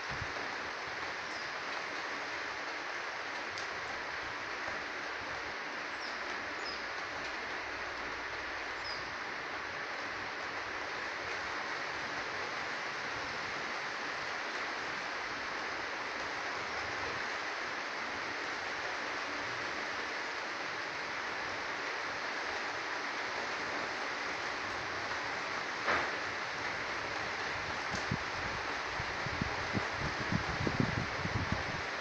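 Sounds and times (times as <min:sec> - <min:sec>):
heavy rain on trees: 0:00.0 - 0:32.0.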